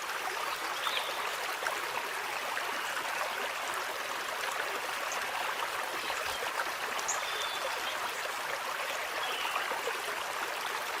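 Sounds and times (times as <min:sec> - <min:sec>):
flowing stream rushing: 0:00.0 - 0:11.0.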